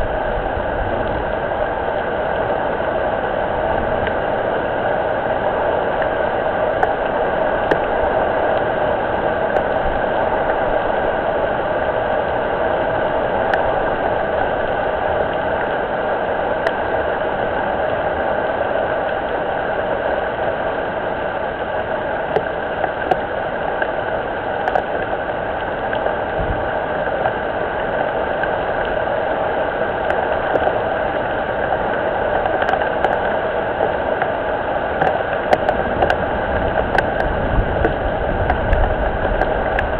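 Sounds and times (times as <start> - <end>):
rain falling on pond: 0.0 - 39.9
single raindrop ticks: 24.6 - 25.1, 30.1 - 30.8, 32.4 - 34.3, 35.0 - 39.9.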